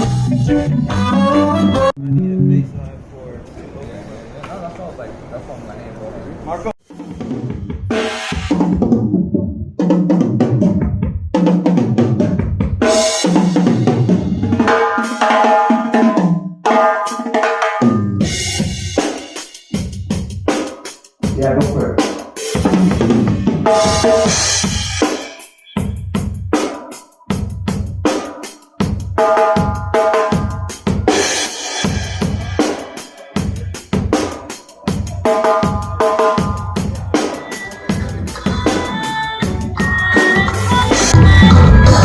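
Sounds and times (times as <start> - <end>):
drum kit playing: 0.0 - 2.0, 6.8 - 42.0
pitched instruments: 0.0 - 2.9, 21.2 - 42.0.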